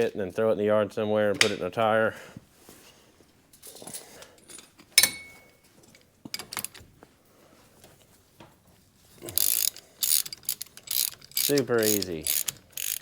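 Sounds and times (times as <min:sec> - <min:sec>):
steel hand tools clinking: 0:03.9 - 0:05.7, 0:09.3 - 0:13.0
ringing metal clank: 0:05.0 - 0:05.6
ratchet wrench clicking: 0:09.4 - 0:13.0.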